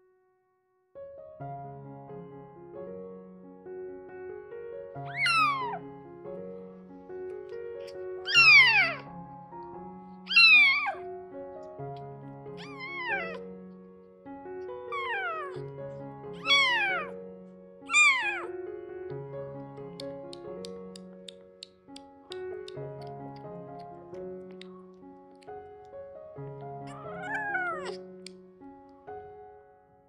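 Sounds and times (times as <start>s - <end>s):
soft background music: 1.3s - 30.0s
kitten mewing loudly: 5.1s - 5.8s, 7.9s - 9.1s, 10.3s - 11.0s, 12.6s - 13.4s, 14.9s - 15.6s, 16.3s - 17.1s, 17.9s - 18.5s, 26.8s - 28.0s.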